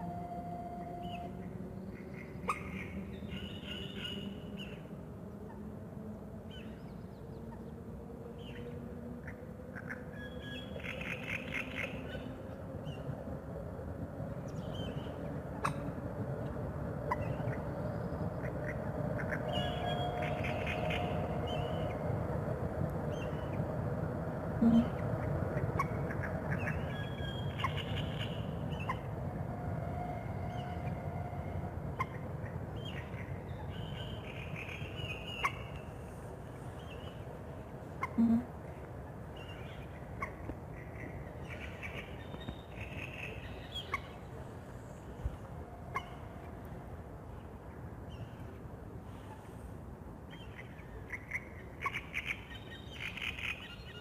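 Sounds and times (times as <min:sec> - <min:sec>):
distant train horn: 0:00.0 - 0:01.8, 0:19.4 - 0:22.0, 0:24.6 - 0:25.3, 0:28.1 - 0:32.3, 0:38.1 - 0:38.7
low steady rumble: 0:00.0 - 0:50.9
low bird call: 0:24.6 - 0:29.1
birds chirping and trilling: 0:24.6 - 0:29.2.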